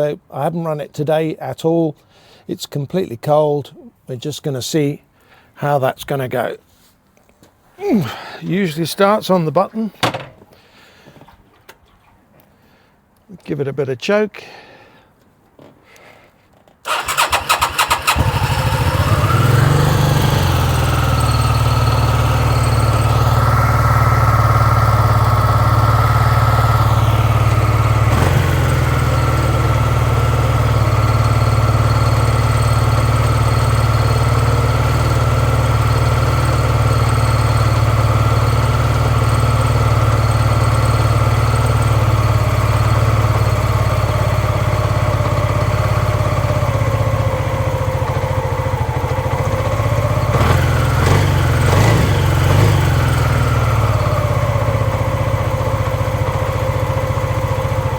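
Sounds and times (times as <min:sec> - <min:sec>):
motorcycle engine idling: 0:16.9 - 0:57.9.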